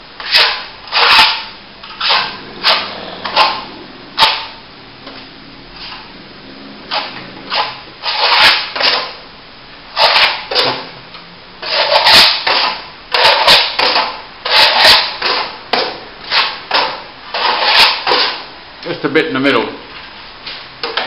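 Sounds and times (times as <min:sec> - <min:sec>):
trowel scraping wet plaster: 0:00.2 - 0:04.5, 0:06.9 - 0:09.2, 0:09.9 - 0:10.8, 0:11.6 - 0:15.5, 0:16.2 - 0:18.5.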